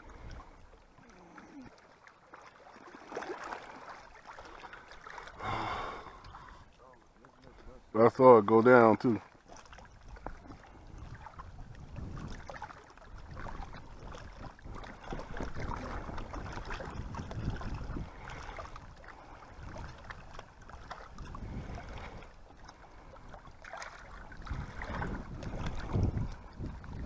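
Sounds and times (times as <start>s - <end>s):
waves lapping at shore: 0.0s - 27.0s
wind buffeting microphone: 9.9s - 27.0s.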